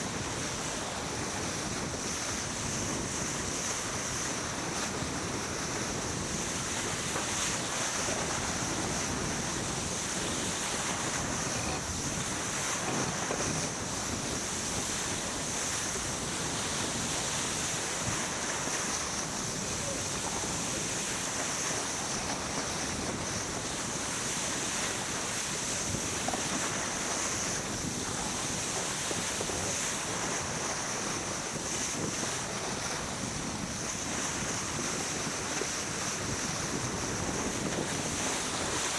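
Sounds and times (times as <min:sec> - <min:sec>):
wind and water rushing: 0:00.0 - 0:38.9
wind buffeting microphone: 0:00.0 - 0:38.9.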